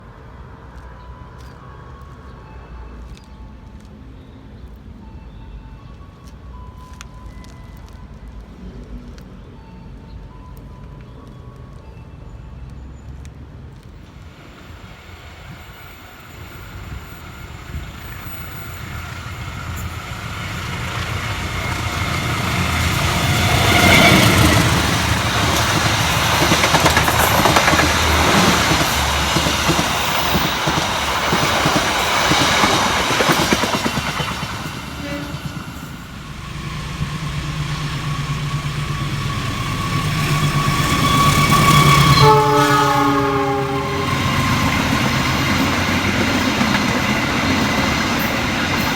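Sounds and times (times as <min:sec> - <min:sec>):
train rumble and wheel clatter: 0:00.0 - 0:48.9
locomotive humming: 0:14.0 - 0:48.9
multi-tone train horn: 0:19.6 - 0:30.6, 0:34.6 - 0:46.0.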